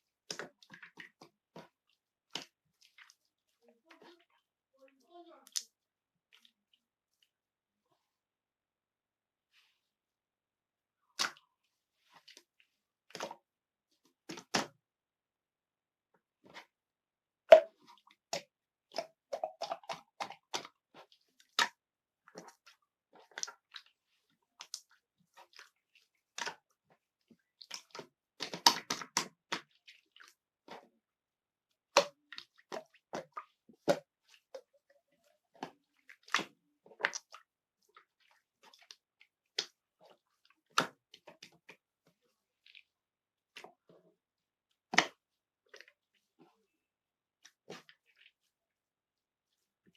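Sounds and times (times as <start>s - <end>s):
slime sticky clicks and wet pops: 27.6s - 29.7s, 44.9s - 45.2s.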